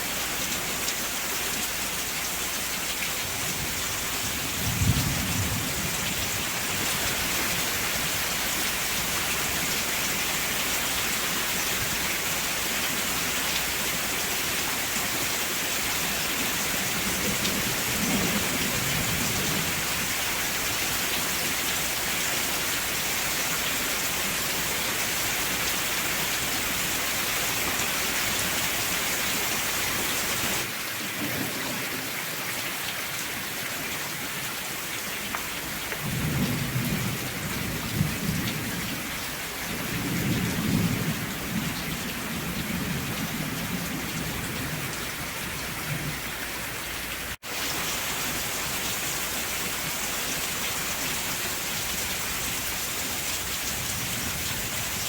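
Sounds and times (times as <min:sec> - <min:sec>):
steady rain: 0:00.0 - 0:55.0
thunder rolling: 0:04.4 - 0:06.4.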